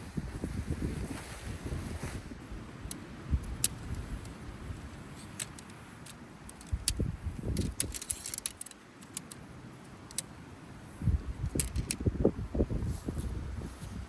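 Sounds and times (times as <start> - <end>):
sharp clicks: 5.2 - 9.4
small metal items jangling: 7.6 - 8.8.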